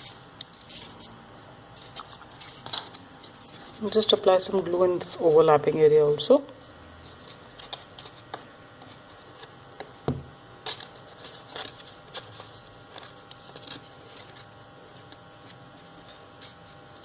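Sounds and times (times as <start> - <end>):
paper rustling and tapping: 7.6 - 16.6
knock on table: 10.0 - 10.3.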